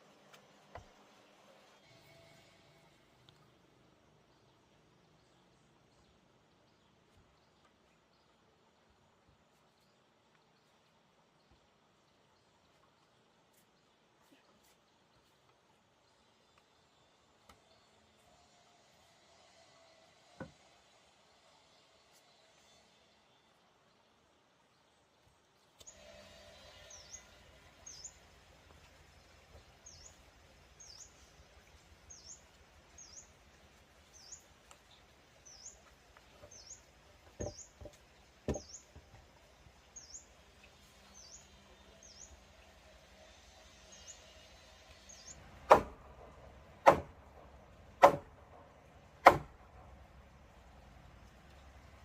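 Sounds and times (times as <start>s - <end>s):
bird chirping: 34.0s - 39.0s, 45.0s - 45.5s
knocks: 37.3s - 38.8s
tool striking wood: 37.3s - 38.8s, 45.6s - 46.1s, 46.8s - 47.2s, 48.0s - 48.4s, 49.2s - 49.6s.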